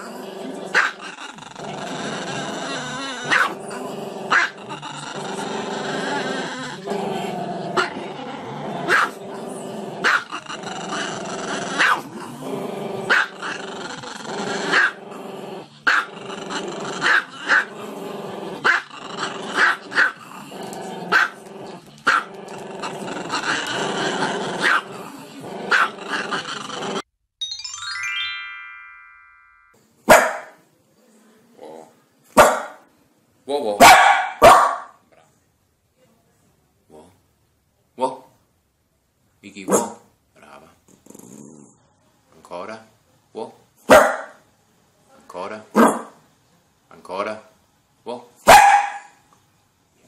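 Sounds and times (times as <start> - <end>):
chime tones: 27.4 - 29.8
music: 27.4 - 29.8.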